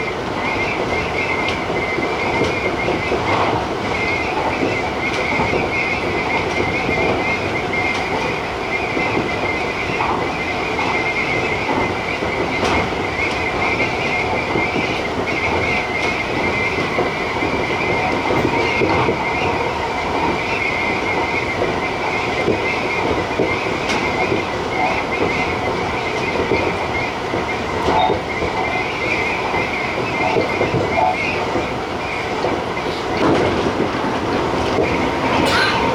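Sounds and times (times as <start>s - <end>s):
electric train running: 0.0s - 35.9s.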